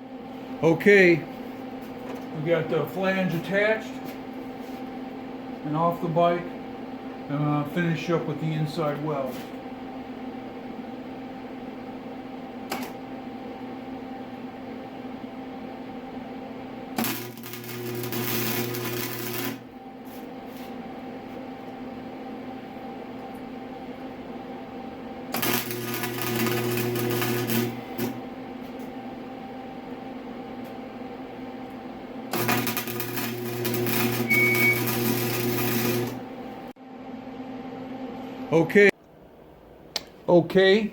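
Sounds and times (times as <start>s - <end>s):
welding machine hum: 12.6s - 13.2s, 16.1s - 30.0s, 31.4s - 36.7s
electric welding arc crackling: 17.0s - 19.6s, 25.3s - 28.2s, 32.3s - 36.3s.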